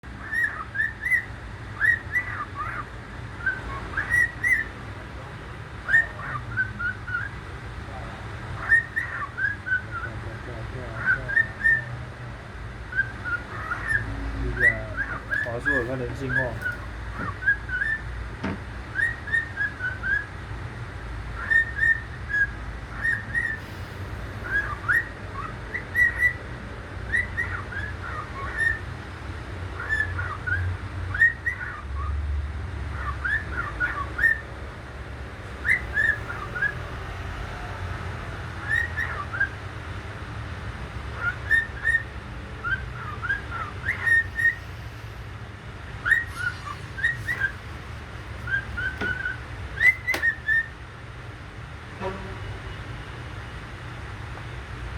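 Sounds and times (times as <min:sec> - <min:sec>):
bird whistling: 0:00.2 - 0:04.8, 0:08.6 - 0:10.2, 0:11.0 - 0:11.9, 0:12.9 - 0:18.1, 0:18.9 - 0:20.3, 0:21.4 - 0:26.4, 0:27.1 - 0:28.8, 0:35.5 - 0:38.0, 0:38.6 - 0:39.6, 0:41.2 - 0:45.0, 0:46.0 - 0:47.8, 0:48.4 - 0:50.8.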